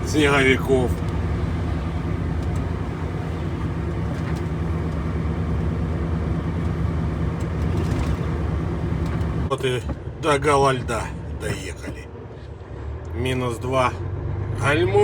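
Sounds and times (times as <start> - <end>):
road noise: 0.0 - 15.0
truck diesel engine driving: 0.0 - 15.0.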